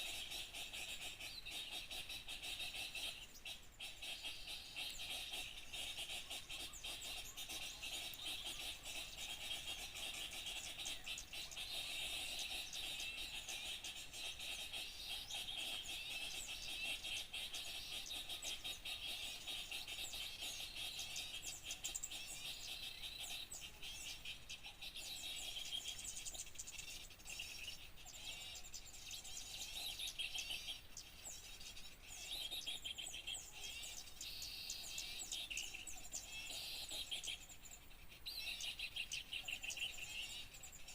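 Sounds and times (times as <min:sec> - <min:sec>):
many small birds chirping: 0:00.0 - 0:40.9.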